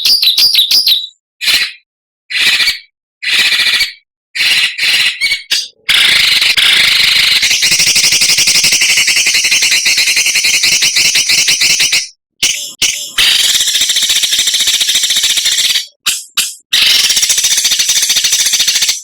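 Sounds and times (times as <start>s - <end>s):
songbird rasping scold calls: 4.4s - 19.0s.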